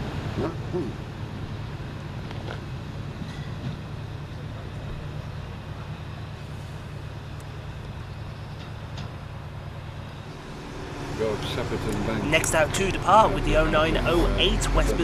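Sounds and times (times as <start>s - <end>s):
train engine rumbling: 0.0s - 15.0s.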